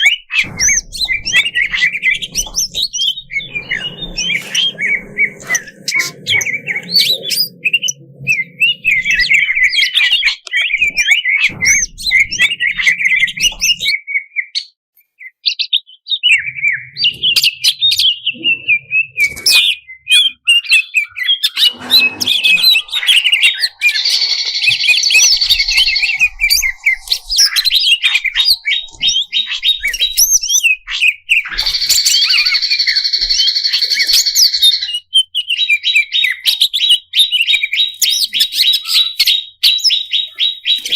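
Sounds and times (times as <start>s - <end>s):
harsh buzzy bird phrases: 0.0s - 13.9s, 21.2s - 35.0s
songbird chirping and whistling: 0.0s - 40.9s.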